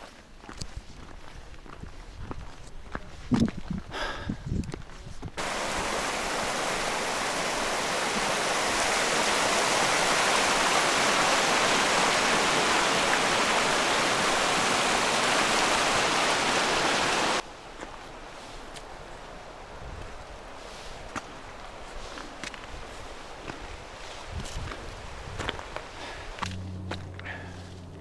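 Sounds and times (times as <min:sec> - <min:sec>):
fast-flowing water rushing: 0:05.4 - 0:27.2.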